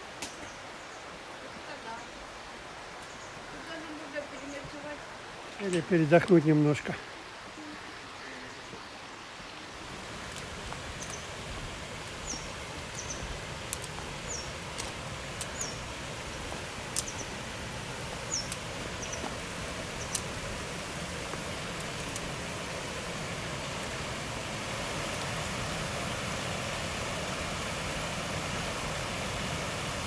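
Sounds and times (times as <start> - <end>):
waterfall rushing: 9.8 - 30.0
small bird chirping: 10.9 - 11.4, 12.1 - 14.6, 15.4 - 16.0, 16.9 - 17.5, 18.2 - 20.5
sharp clicks: 16.9 - 17.3.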